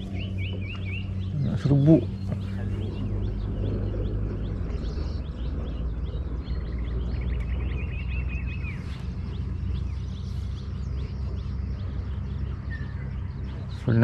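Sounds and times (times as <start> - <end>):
birds chirping and calling: 0.0 - 14.0
steady low hum: 0.0 - 14.0.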